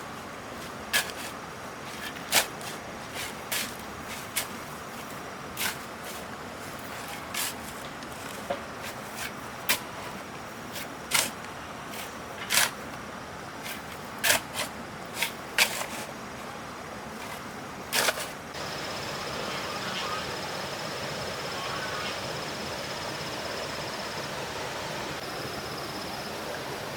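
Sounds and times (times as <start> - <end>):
tools scraping wet cement: 0.9 - 4.6, 10.8 - 12.8, 13.6 - 16.1, 17.2 - 18.4
steady hiss: 17.0 - 26.9
thin high whine: 18.6 - 26.9.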